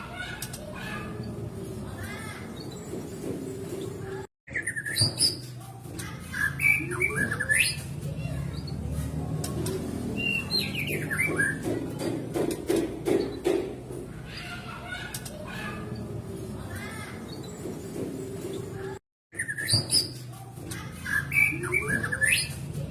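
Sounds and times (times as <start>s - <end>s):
bird singing whistled phrases: 10.2s - 11.3s.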